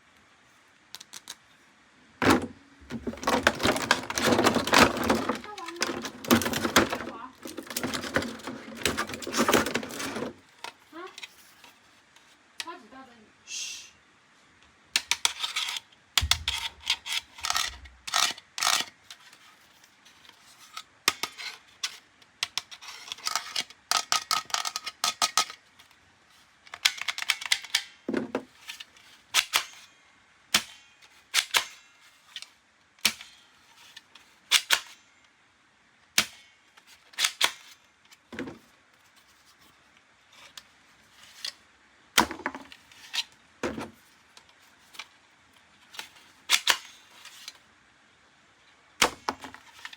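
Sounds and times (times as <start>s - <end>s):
plastic toy pieces clicking: 0.9s - 1.4s, 15.0s - 18.9s, 22.4s - 25.6s
packaging rustling: 2.2s - 10.4s.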